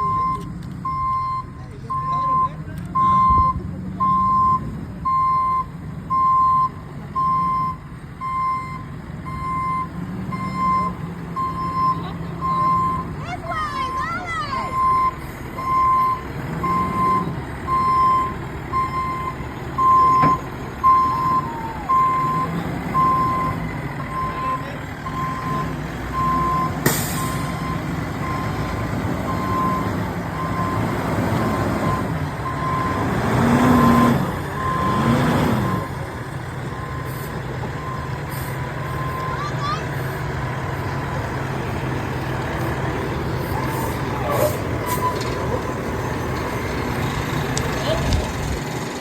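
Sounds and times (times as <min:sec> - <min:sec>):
back-up alarm beeping: 0:00.0 - 0:30.9, 0:31.5 - 0:35.9, 0:36.6 - 0:40.2
diesel engine running: 0:00.0 - 0:49.0.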